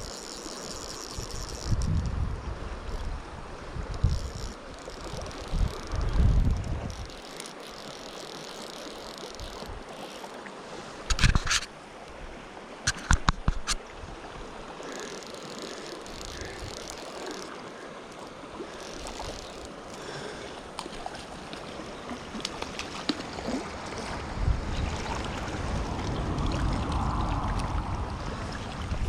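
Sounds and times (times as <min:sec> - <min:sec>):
river water rushing: 0:07.1 - 0:29.0.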